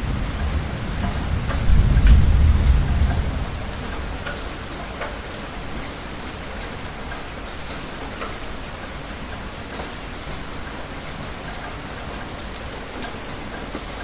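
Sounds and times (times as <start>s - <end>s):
thunder rumble: 0.0s - 5.0s
heavy rain: 0.0s - 14.0s
raindrops ticking on surface: 0.0s - 14.0s.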